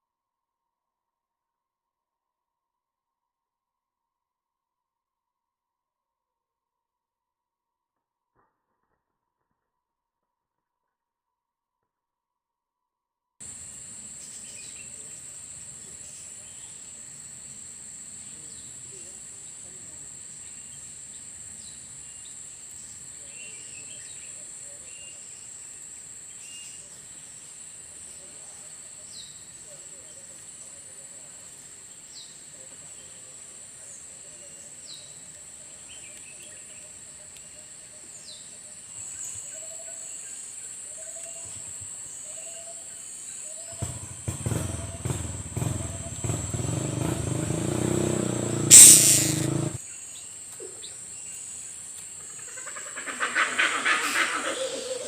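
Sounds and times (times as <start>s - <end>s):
high-pitched insect drone: 13.4s - 28.9s, 48.6s - 49.8s
high falling bird calls: 13.5s - 19.1s, 48.7s - 49.8s.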